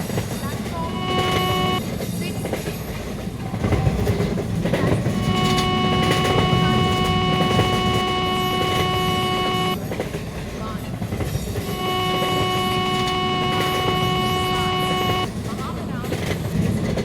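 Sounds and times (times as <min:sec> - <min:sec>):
locomotive horn blast: 0:00.6 - 0:01.8, 0:04.8 - 0:09.8, 0:11.6 - 0:15.3.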